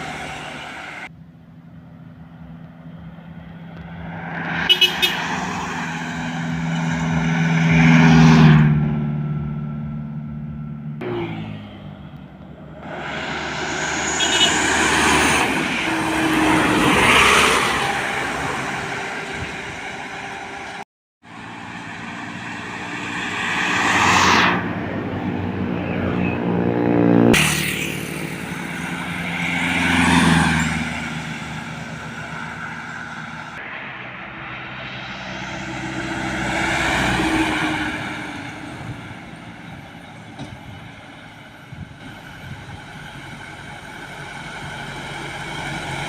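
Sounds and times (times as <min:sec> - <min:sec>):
trucks passing by: 0:00.0 - 0:46.0.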